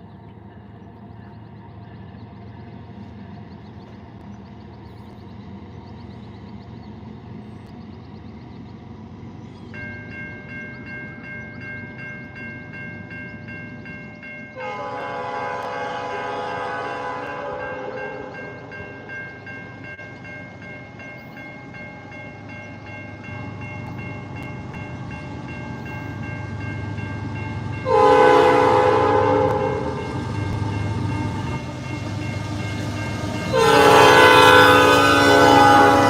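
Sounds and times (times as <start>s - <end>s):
passing train rumble: 0.0s - 36.0s
locomotive air horn blasts: 14.6s - 18.5s, 27.8s - 30.6s, 33.3s - 36.0s.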